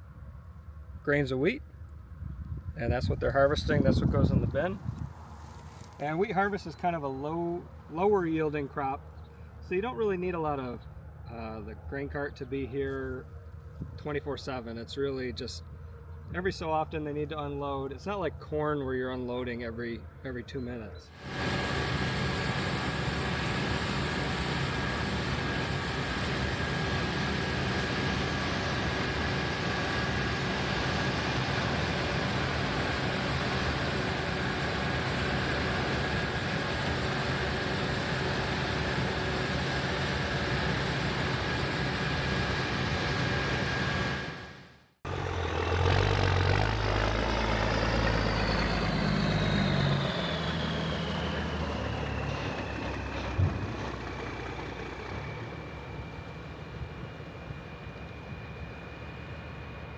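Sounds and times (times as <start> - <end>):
deeper engine with falling whine: 1.8 - 18.4, 21.1 - 59.9
combine harvester running: 2.9 - 10.4, 21.1 - 59.9.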